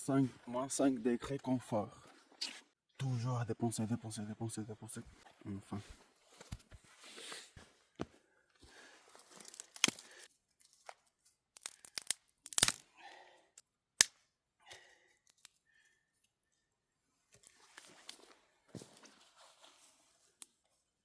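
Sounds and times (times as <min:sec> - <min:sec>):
rustling and crinkling: 0:08.8 - 0:12.1, 0:17.3 - 0:20.9
sharp clicks and cracks: 0:09.5 - 0:10.1, 0:11.6 - 0:12.8.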